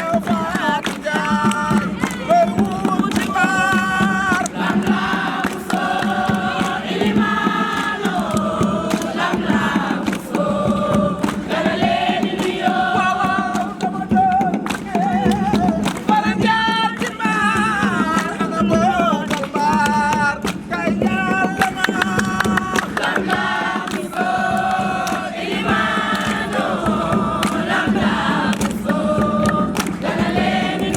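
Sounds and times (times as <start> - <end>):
group singing together: 0.0 - 30.9
sharp percussive beats: 0.0 - 30.9.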